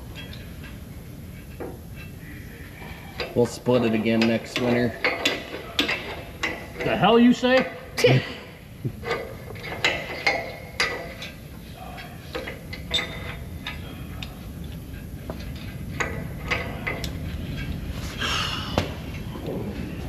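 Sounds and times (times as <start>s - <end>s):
metal knocks and clanks: 3.2s - 17.8s
steady low rumble: 13.5s - 20.0s.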